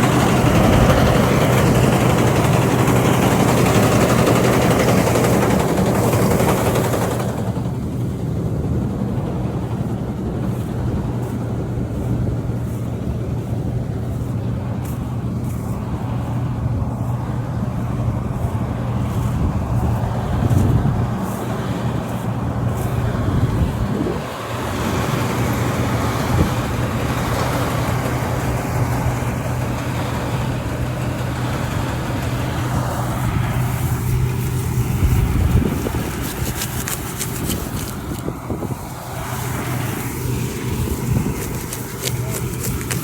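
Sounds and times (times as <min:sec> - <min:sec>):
harvesting machine engine humming: 0:00.0 - 0:43.0.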